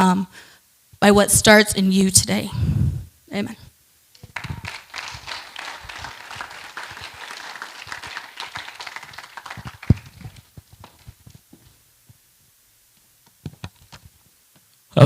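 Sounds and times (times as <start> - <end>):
crowd applauding: 4.2 - 11.2.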